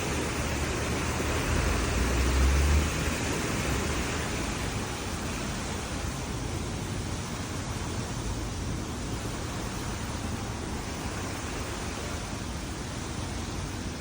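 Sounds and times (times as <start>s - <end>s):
passing vehicle rumble: 0.0s - 12.5s
street traffic hiss: 0.0s - 14.0s.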